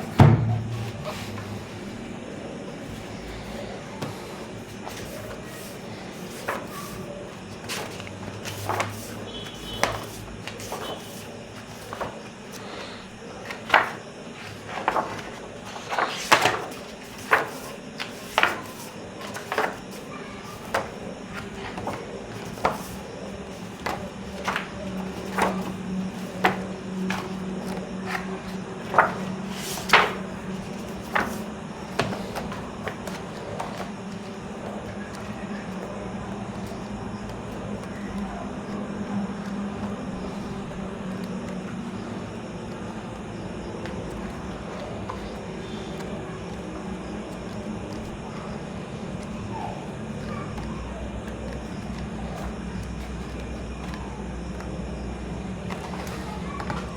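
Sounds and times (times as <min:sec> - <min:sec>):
faint low hum: 0:00.0 - 0:56.9
book pages turning: 0:00.1 - 0:54.9, 0:55.5 - 0:56.9.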